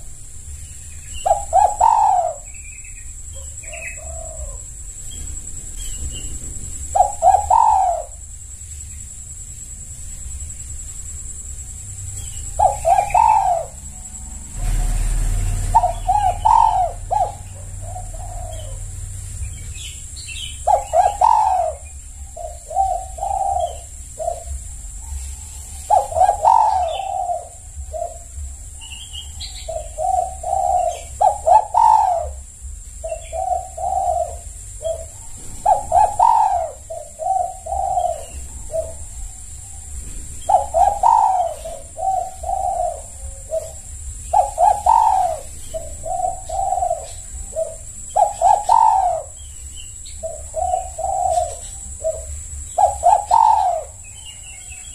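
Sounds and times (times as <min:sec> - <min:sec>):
dove cooing: 0:00.0 - 0:08.6, 0:10.4 - 0:54.9.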